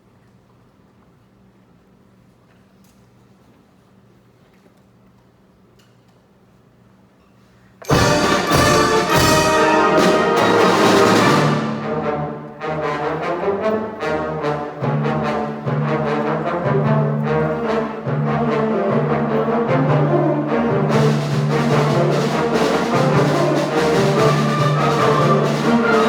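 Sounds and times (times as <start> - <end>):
timpani: 7.8 - 26.0
wind band playing: 7.8 - 26.0.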